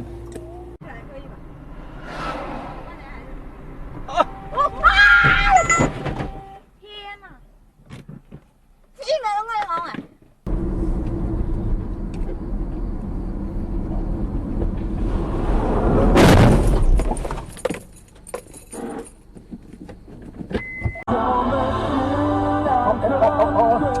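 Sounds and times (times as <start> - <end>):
vehicle rumble and road noise: 0.0 - 24.0
loud crash impact: 15.8 - 17.2.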